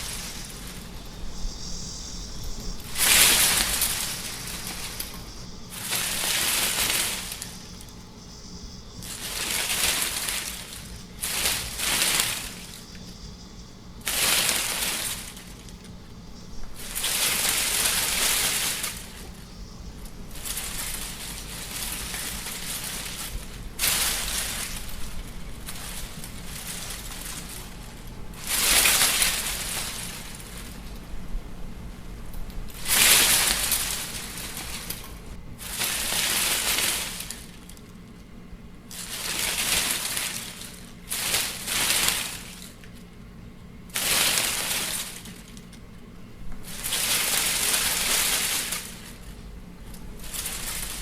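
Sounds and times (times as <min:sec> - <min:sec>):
wind blowing in gusts: 0:00.0 - 0:35.6.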